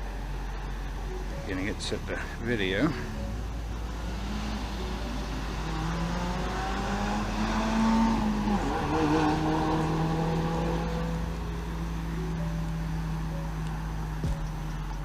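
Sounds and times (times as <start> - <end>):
vehicle engine running: 0.0 - 15.0
constant low hum: 10.8 - 15.0.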